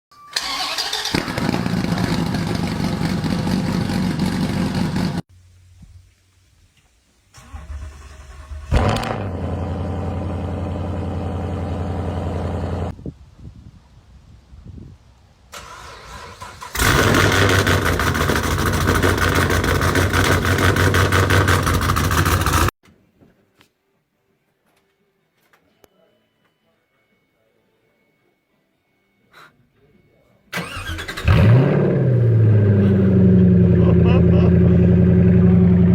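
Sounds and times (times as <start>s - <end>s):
car engines cold-starting: 0.3s - 5.2s, 7.3s - 12.9s, 15.5s - 22.7s, 30.5s - 35.9s
engine backfire bang: 1.0s - 5.2s, 7.4s - 11.2s
car engine high idle: 1.4s - 5.2s, 9.4s - 12.9s.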